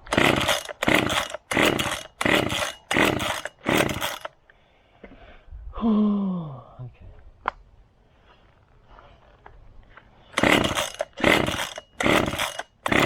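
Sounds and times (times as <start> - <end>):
chainsaw engine cranking: 0.0 - 4.4, 10.3 - 13.0
chainsaw recoil starter pulls: 0.0 - 4.4, 10.3 - 13.0.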